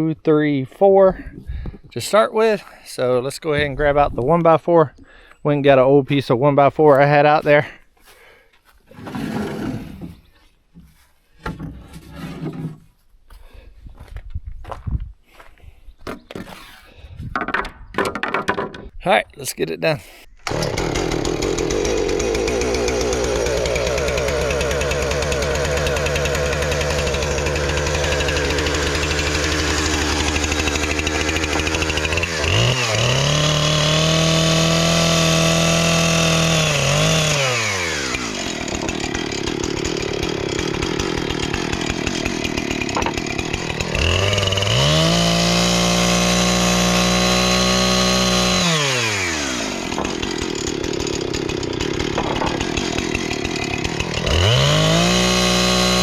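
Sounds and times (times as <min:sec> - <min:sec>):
chainsaw cutting board: 0:08.9 - 0:12.9, 0:16.0 - 0:18.9, 0:20.4 - 0:56.0
chainsaw idling and revving: 0:20.4 - 0:56.0.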